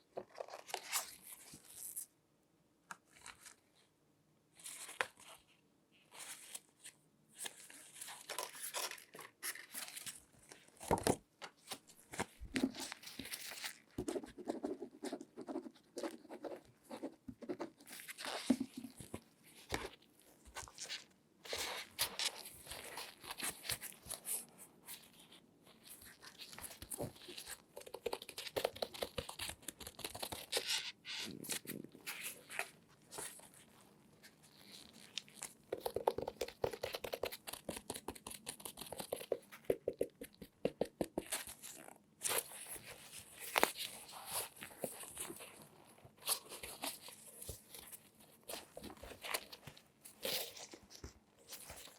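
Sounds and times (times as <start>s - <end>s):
gloved hands rustling and crinkling: 17.6s - 51.9s.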